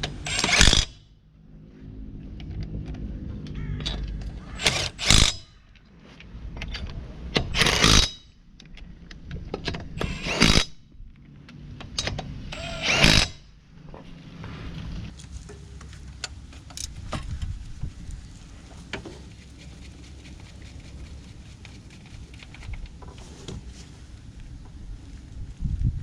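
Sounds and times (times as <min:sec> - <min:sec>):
power tool bursts: 0:00.0 - 0:01.0, 0:04.6 - 0:05.5, 0:07.5 - 0:08.2, 0:10.0 - 0:10.8, 0:12.5 - 0:13.5
whirr of power tool: 0:00.0 - 0:01.0, 0:04.6 - 0:05.5, 0:07.4 - 0:08.3, 0:09.7 - 0:10.9, 0:12.0 - 0:13.5.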